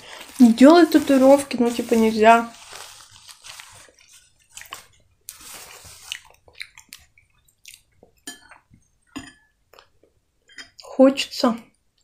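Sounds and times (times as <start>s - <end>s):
person eating soup: 3.3s - 10.8s.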